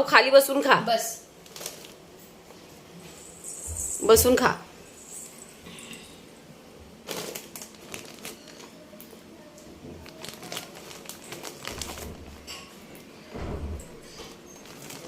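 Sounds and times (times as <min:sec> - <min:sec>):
snack packet crinkling: 0:01.4 - 0:02.0, 0:07.0 - 0:09.1, 0:10.0 - 0:12.5, 0:14.6 - 0:15.0.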